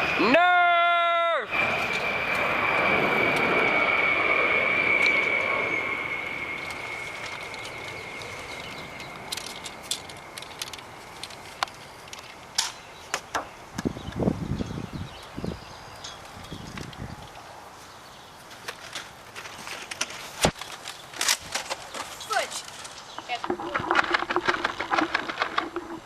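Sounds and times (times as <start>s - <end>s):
droning noise with high whine: 0.0s - 17.8s.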